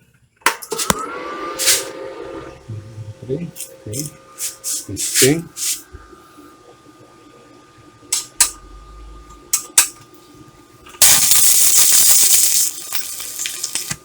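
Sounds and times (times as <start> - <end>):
welding arc crackling: 11.0 - 14.0.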